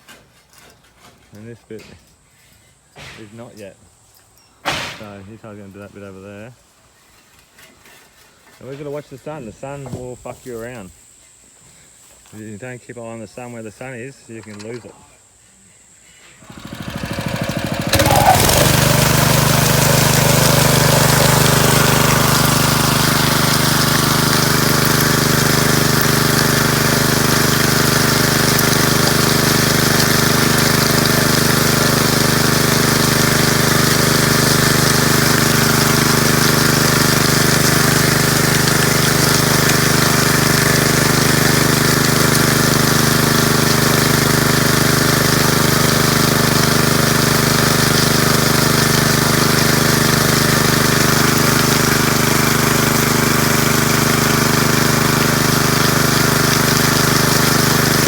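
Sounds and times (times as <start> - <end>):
engine running steadily: 16.4 - 58.0.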